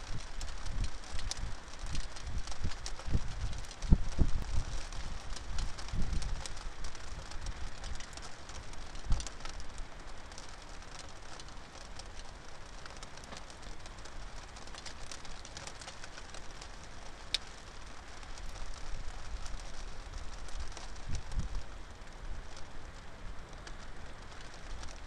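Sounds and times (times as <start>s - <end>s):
blustery wind: 0.0s - 10.6s, 16.5s - 25.0s
rain pattering: 0.0s - 25.0s.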